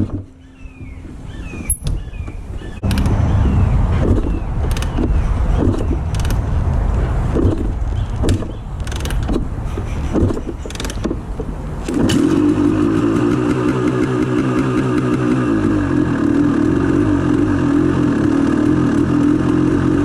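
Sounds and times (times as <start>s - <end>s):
two-stroke engine cold start: 11.8s - 20.0s.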